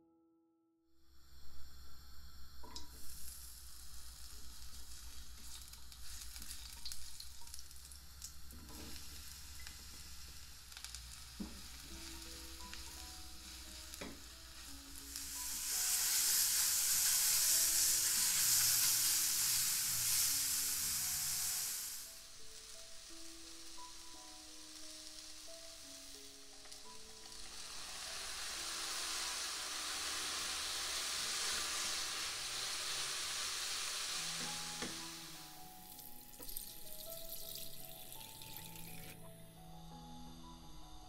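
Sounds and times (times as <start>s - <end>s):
food sizzling in hot oil: 1.1s - 39.3s
spatula scraping a wok: 11.2s - 22.0s, 27.3s - 35.4s.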